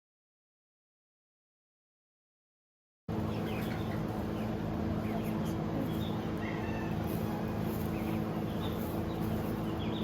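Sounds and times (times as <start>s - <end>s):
steady low hum: 3.1s - 10.0s.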